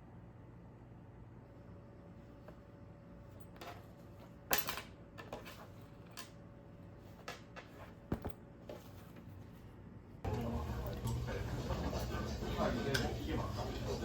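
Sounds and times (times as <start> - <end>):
low room hum: 0.0 - 14.0
tableware clicking and clattering: 4.5 - 6.4.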